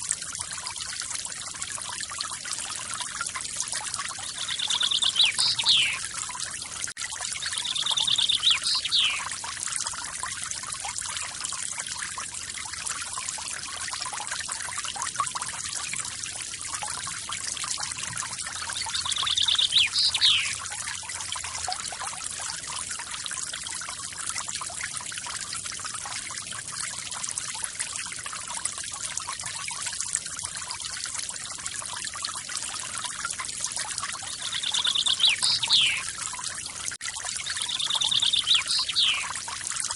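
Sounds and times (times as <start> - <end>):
waterfall pouring: 0.0 - 39.9
bird trill and whistle: 4.4 - 6.0, 7.4 - 9.3, 18.8 - 20.6, 34.4 - 36.1, 37.4 - 39.3.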